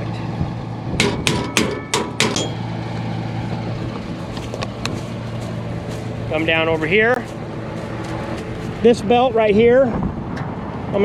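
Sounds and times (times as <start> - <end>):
steady low hum: 0.0 - 11.0
hammer striking steel: 1.0 - 2.8.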